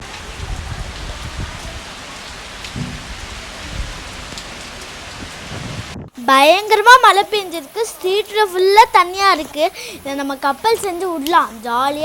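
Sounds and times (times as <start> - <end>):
heavy rain hissing: 0.0 - 12.0
low thumps or rumbles: 2.7 - 4.0.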